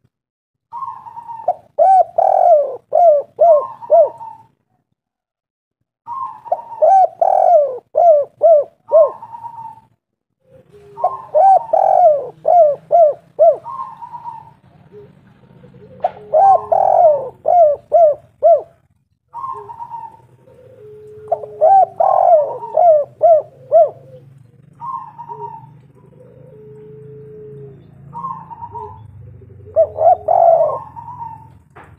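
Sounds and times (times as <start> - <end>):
dove cooing: 0.7 - 4.6, 6.1 - 31.9.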